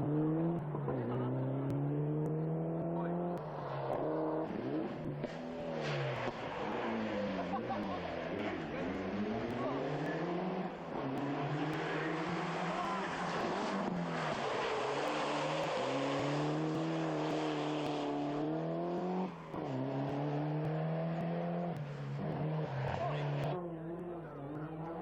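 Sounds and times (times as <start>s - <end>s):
rally car engine accelerating: 0.0s - 25.0s.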